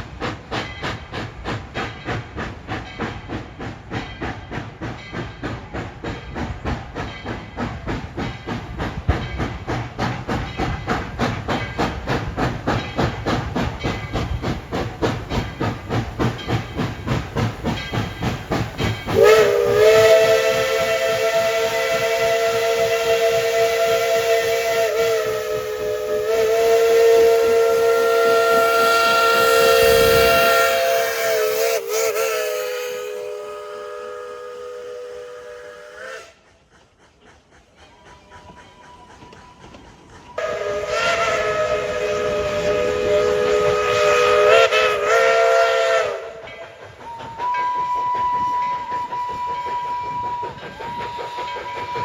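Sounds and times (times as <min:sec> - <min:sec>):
steam locomotive chuffing: 0:00.0 - 0:52.0
steam whistle blast: 0:19.1 - 0:36.5, 0:40.3 - 0:52.0.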